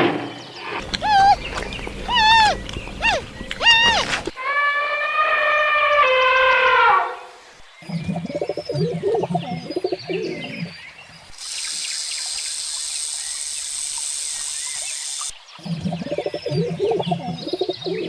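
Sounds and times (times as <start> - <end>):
small birds chirping: 0.4 - 8.8, 9.4 - 18.0
high-pitched hiss: 11.3 - 15.4.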